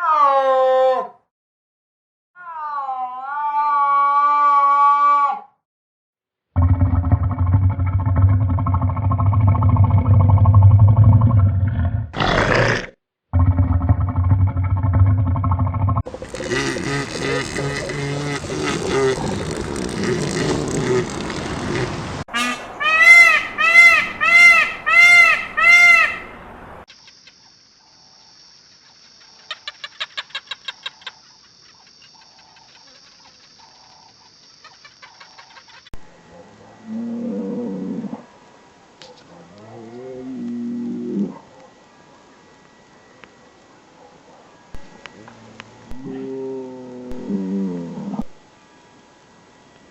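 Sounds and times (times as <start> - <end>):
large animal growling: 6.6 - 22.2
gull calling: 16.1 - 26.3.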